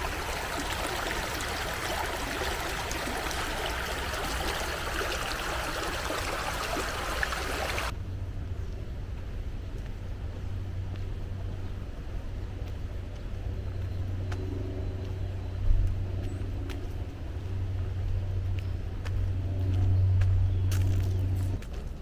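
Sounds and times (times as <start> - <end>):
distant road traffic rumble: 0.0 - 7.9.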